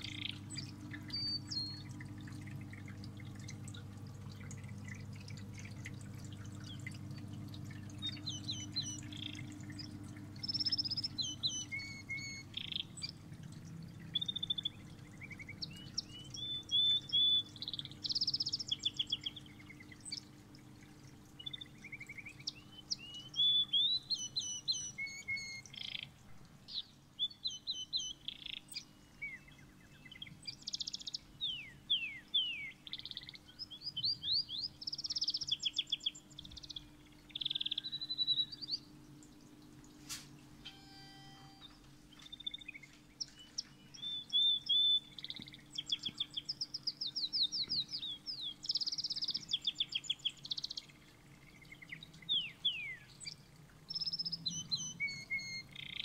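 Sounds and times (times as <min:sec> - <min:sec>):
steady low hum: 0:00.0 - 0:23.1
songbird singing: 0:00.0 - 0:39.4, 0:40.1 - 0:56.0.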